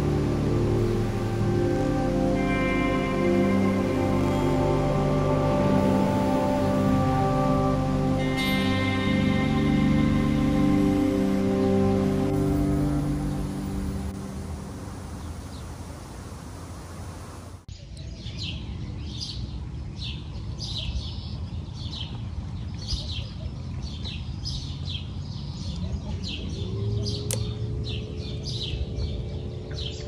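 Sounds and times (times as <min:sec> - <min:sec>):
river water rushing: 0:00.0 - 0:17.6
low outdoor rumble: 0:00.0 - 0:17.7, 0:21.4 - 0:30.0
steady low hum: 0:00.0 - 0:17.7.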